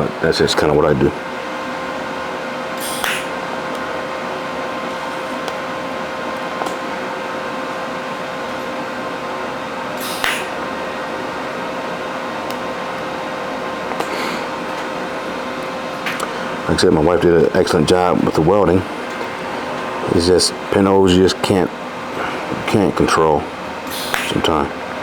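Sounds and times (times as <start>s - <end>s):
welding arc hissing: 2.7s - 16.8s, 22.0s - 24.7s.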